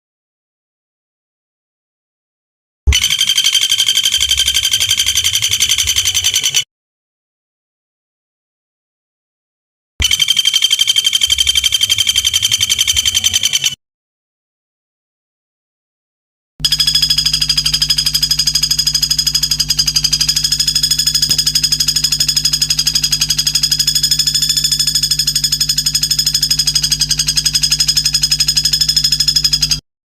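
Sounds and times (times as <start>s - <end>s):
high-pitched pulsing bird trill: 10.0s - 13.8s, 16.6s - 29.8s.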